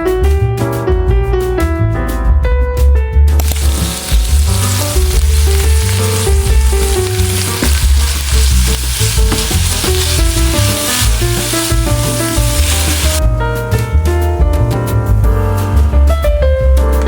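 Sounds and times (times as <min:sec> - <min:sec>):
piano background music: 0:00.0 - 0:17.0
food sizzling in a pan: 0:03.4 - 0:13.2.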